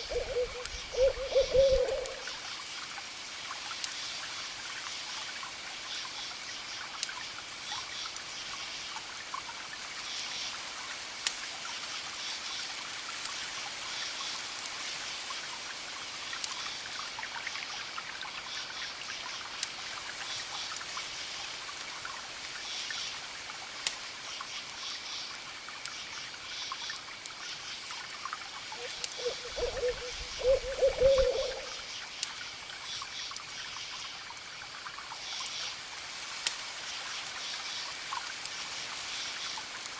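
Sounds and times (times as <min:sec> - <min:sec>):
low wavering call: 0:00.0 - 0:02.2, 0:28.8 - 0:31.8
crickets chirping: 0:00.0 - 0:02.8, 0:24.2 - 0:35.8
campfire crackling: 0:00.0 - 0:05.8, 0:06.9 - 0:13.7, 0:19.4 - 0:33.6, 0:34.2 - 0:39.9.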